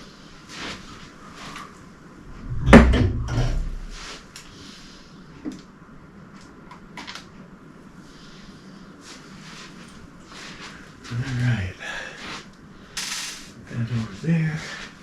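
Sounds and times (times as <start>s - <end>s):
hard thump with rattle: 2.4s - 4.0s.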